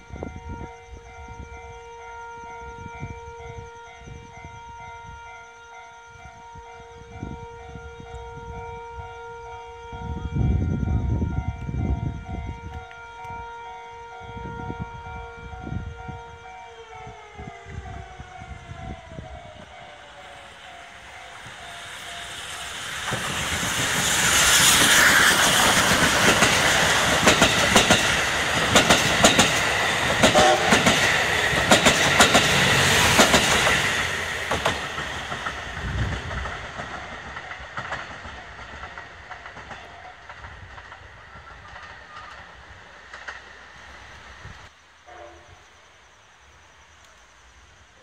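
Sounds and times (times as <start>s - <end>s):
steam train passing: 0.0s - 48.0s
wheels clattering over rail joints: 24.7s - 43.9s.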